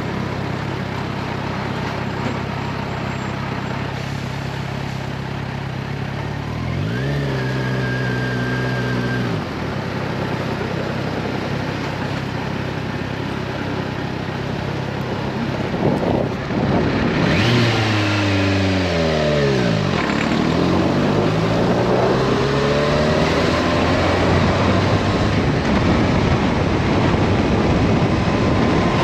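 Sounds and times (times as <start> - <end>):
motorcycle engine cruising: 0.0 - 29.0
rising engine-like tone: 15.2 - 26.0
wind rush: 15.3 - 18.7, 20.5 - 29.0.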